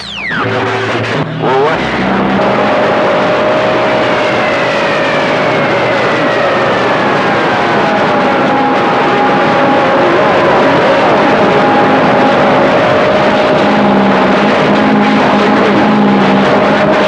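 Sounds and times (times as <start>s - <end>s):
radio static hiss: 0.0s - 11.0s
downward-gliding radio whistles: 0.0s - 17.0s
steady radio whistles: 0.0s - 17.0s.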